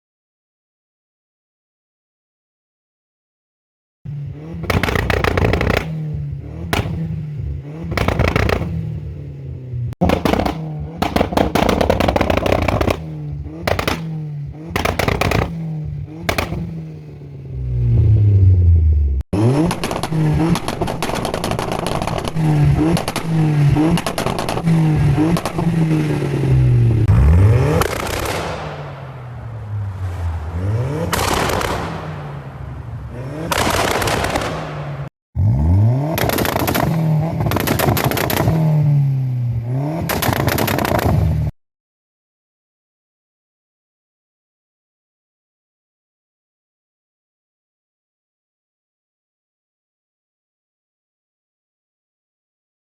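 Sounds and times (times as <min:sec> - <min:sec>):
exhaust bangs: 0:04.1 - 0:41.4
car engine revving: 0:04.1 - 0:41.5.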